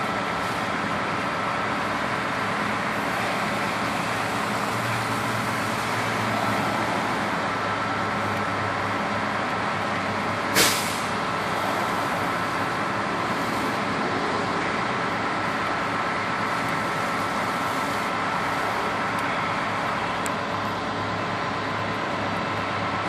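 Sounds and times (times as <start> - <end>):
road vehicles running: 0.0 - 23.0
sharp hiss of air: 10.5 - 12.2.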